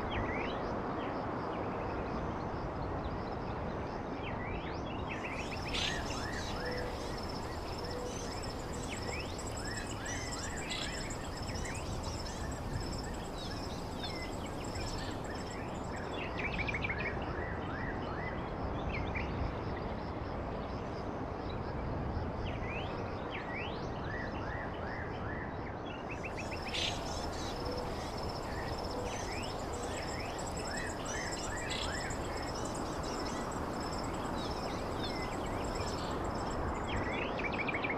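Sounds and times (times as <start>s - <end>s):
steady background noise: 0.0s - 37.9s
small birds chirping: 5.2s - 16.4s, 26.3s - 37.2s
high insect trill: 5.2s - 16.7s, 26.2s - 37.5s.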